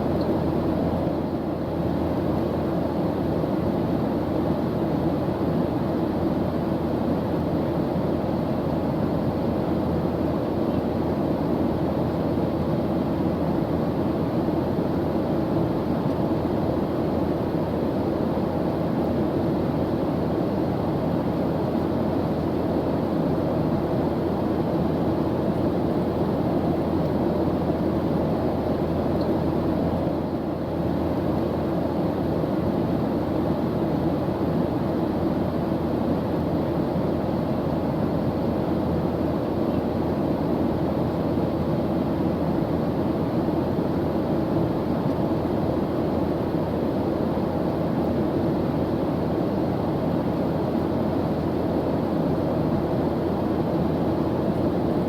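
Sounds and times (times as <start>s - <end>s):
airplane engine drone: 0.0s - 55.0s.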